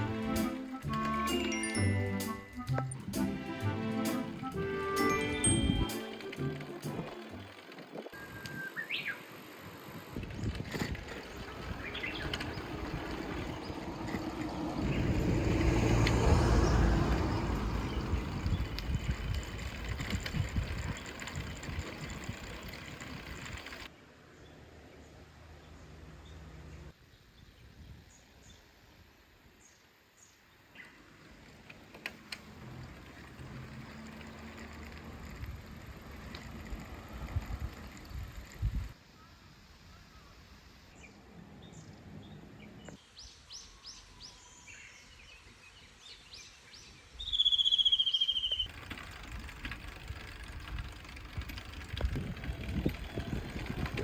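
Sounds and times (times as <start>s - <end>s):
motor vehicle passing: 0.0s - 8.1s, 8.9s - 23.9s, 30.9s - 39.0s, 47.2s - 54.0s
faint high chirps: 8.2s - 9.3s, 47.1s - 48.7s.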